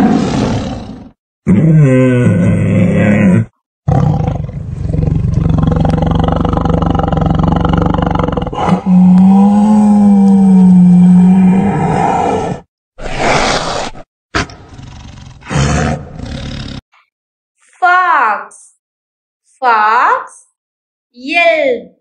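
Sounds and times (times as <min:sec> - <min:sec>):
tiger growling: 0:00.0 - 0:16.8.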